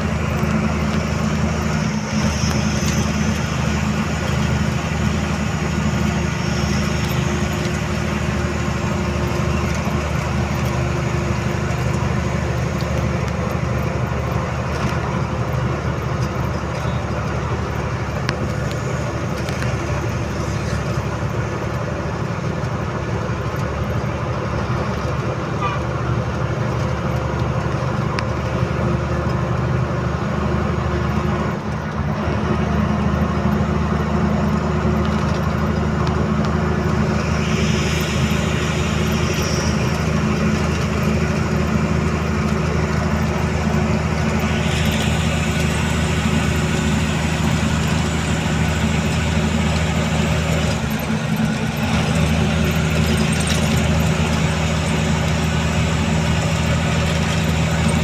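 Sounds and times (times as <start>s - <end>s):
truck engine running: 0.0s - 58.0s
hiss: 37.1s - 40.1s.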